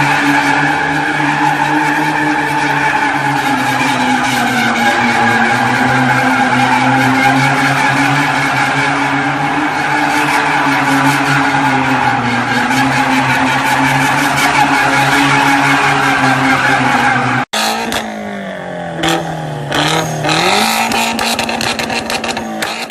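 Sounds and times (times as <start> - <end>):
tyres squealing: 0.0 - 18.2
car engine at high revs: 0.0 - 22.9.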